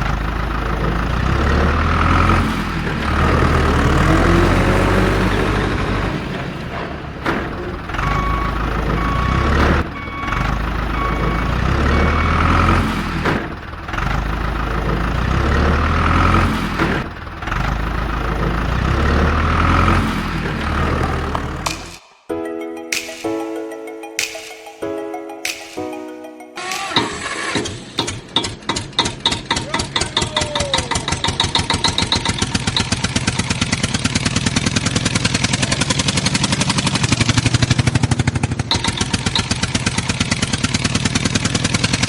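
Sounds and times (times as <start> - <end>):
truck engine running: 0.0 - 22.0, 26.6 - 42.0
reversing beeps: 7.9 - 12.8.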